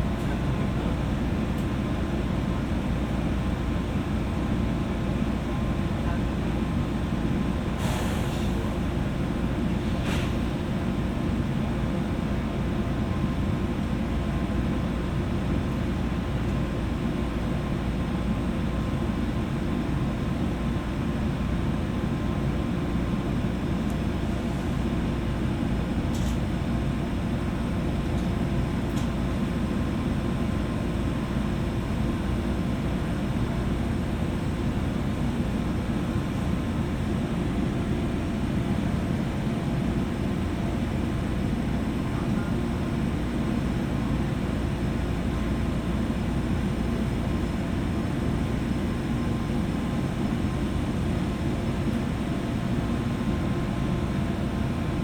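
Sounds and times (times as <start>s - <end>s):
train car interior hum: 0.0s - 55.0s.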